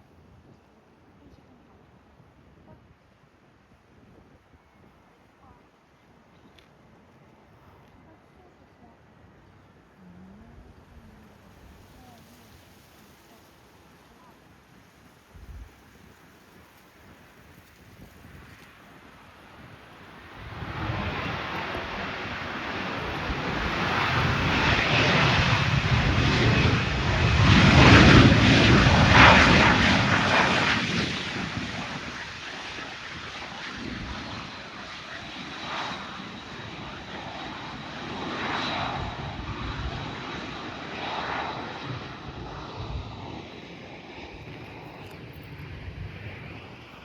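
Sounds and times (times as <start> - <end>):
jet engines passing: 17.5 - 47.0.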